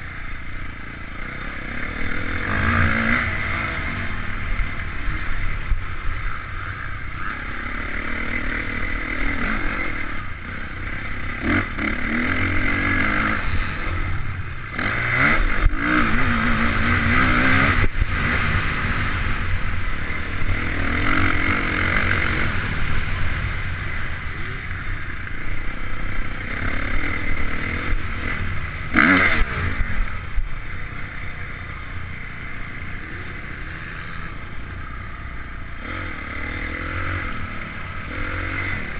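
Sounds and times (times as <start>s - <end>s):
motorcycle engine revving: 0.0s - 38.9s
wind noise rumble: 12.2s - 25.1s.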